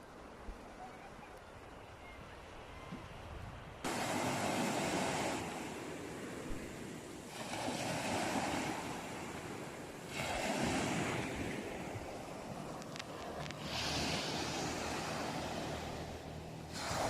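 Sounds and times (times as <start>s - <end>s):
sea waves breaking on shore: 0.0s - 17.0s.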